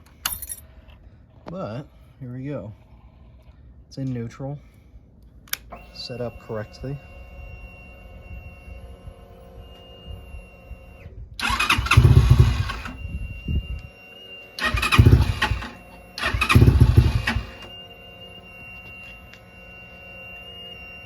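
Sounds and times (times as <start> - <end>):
engine starting up: 11.4 - 13.0, 14.6 - 17.7.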